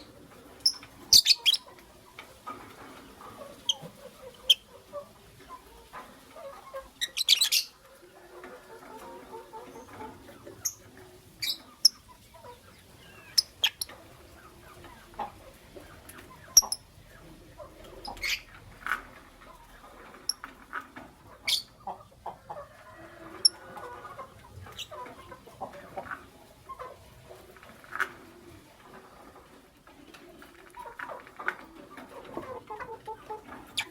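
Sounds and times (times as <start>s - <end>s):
birds chattering softly: 0.0s - 33.9s.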